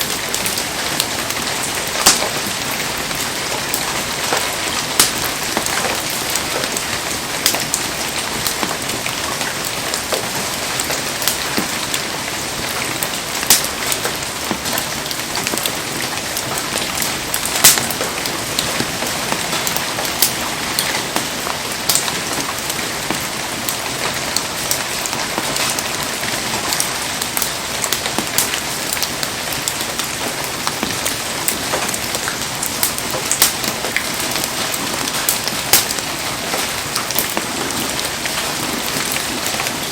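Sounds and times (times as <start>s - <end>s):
heavy rain falling: 0.0s - 39.9s
sharp ticks and pops: 4.3s - 6.8s, 13.4s - 14.8s, 17.6s - 20.4s.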